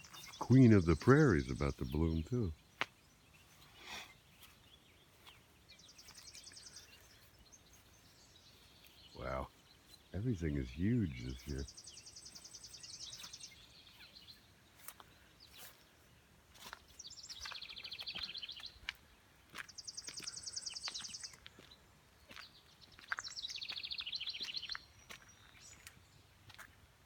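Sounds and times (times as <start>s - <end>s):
songbirds trilling: 0.0s - 26.8s
short bird chirps: 19.6s - 21.4s.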